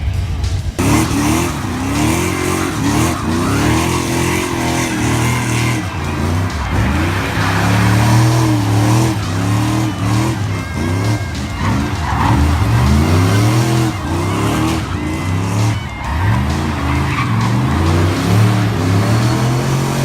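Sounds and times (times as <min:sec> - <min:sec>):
tyres spinning and squealing: 0:00.0 - 0:20.0
vee-eight engine revving: 0:00.0 - 0:20.0.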